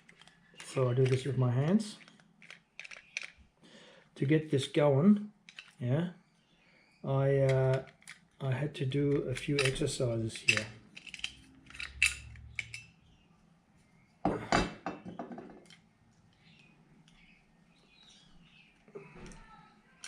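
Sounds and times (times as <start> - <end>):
small hard parts clinking: 0.0 - 3.4, 5.5 - 5.8, 9.1 - 13.0.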